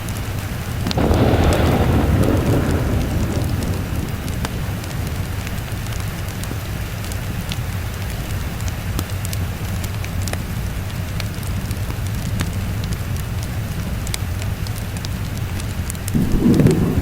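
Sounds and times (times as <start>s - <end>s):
sharp crackles: 0.0s - 17.0s
steady rain: 0.0s - 17.0s
thunder roll: 0.8s - 7.4s, 16.1s - 17.0s
low rumble: 1.0s - 7.1s, 16.1s - 17.0s.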